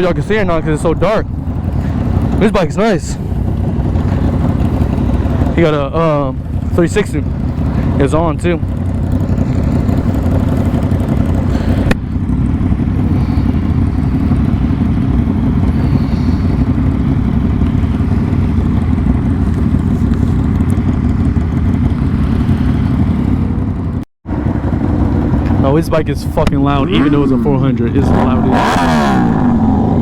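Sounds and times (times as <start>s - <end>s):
motorcycle engine rumbling: 0.0s - 30.0s.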